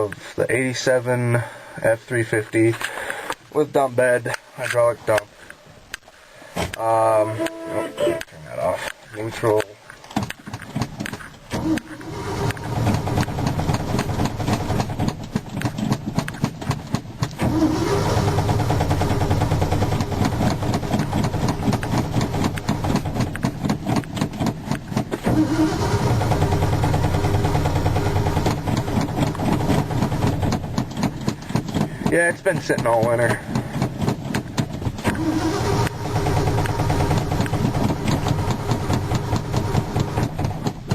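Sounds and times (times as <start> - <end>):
engine cranking with starter: 10.5 - 40.9.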